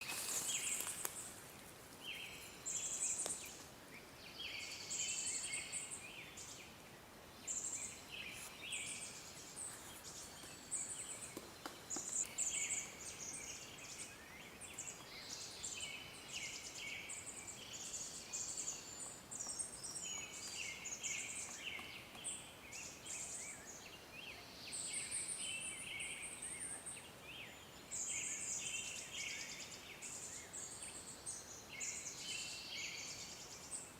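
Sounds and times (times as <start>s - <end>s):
background hiss: 0.0s - 33.9s.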